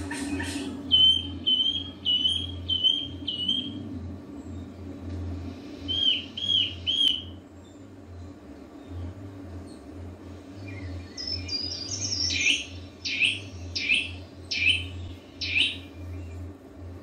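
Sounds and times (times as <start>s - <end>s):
low steady hum: 0.0s - 17.0s
bird whistling: 0.1s - 3.8s, 5.9s - 7.4s, 10.8s - 15.9s.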